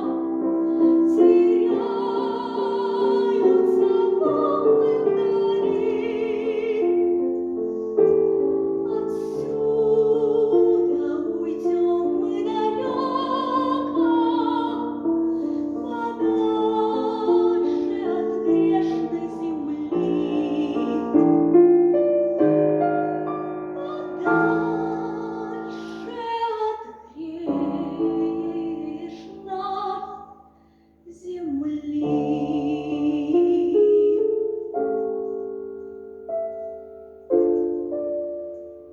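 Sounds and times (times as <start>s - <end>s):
woman singing with vibrato: 0.0s - 7.0s, 8.9s - 15.1s, 15.7s - 21.2s, 23.8s - 30.3s, 31.1s - 34.2s
piano: 0.0s - 38.9s.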